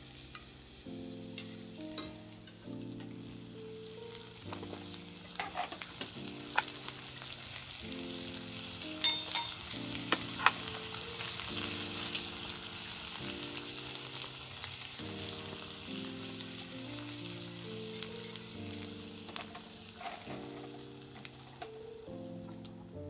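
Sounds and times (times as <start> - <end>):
food sizzling in a hot pan: 0.0 - 23.0
soft music of slow chords: 0.0 - 23.0.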